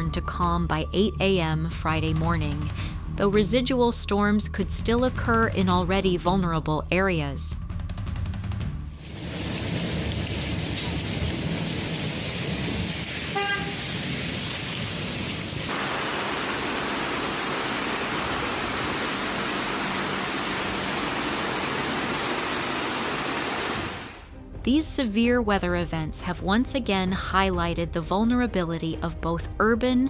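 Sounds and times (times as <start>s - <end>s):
heavy rain pouring: 9.0s - 24.3s.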